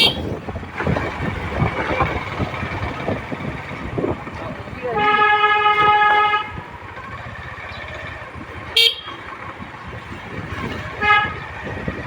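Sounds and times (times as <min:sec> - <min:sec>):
vehicle horn: 0:00.0 - 0:00.4, 0:04.8 - 0:06.7, 0:08.7 - 0:09.3, 0:10.8 - 0:11.8
road and engine noise: 0:00.0 - 0:12.0.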